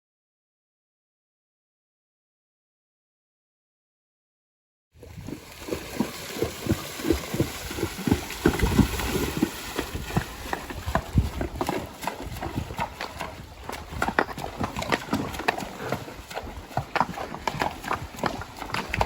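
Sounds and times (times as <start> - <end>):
horse hoofbeats: 5.2 - 19.0.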